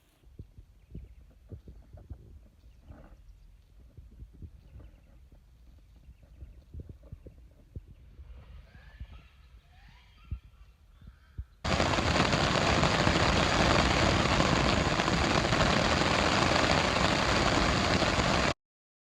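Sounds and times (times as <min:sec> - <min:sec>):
faint bird chirps: 0:00.0 - 0:11.6
wind buffeting microphone: 0:00.3 - 0:09.2, 0:10.3 - 0:18.6.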